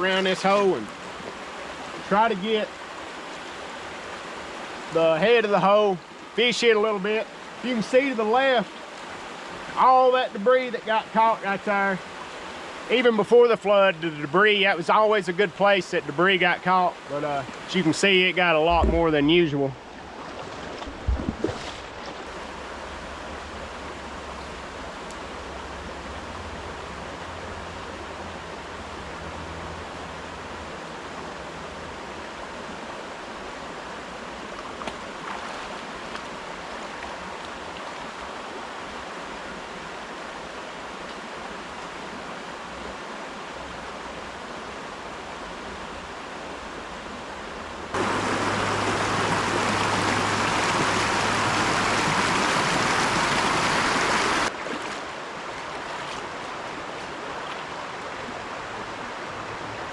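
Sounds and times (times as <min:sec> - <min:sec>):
river rushing over rocks: 0:15.7 - 0:59.9.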